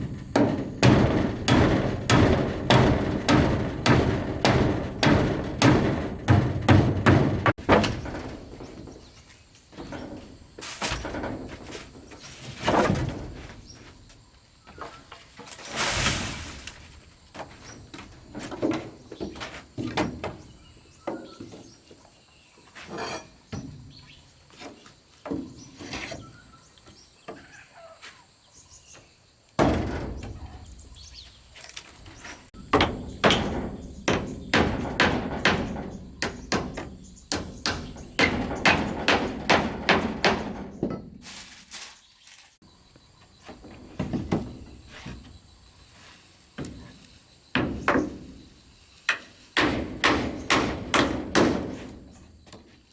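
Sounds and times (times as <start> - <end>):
wood being struck: 0.0 - 9.0, 32.6 - 40.9, 49.6 - 51.9.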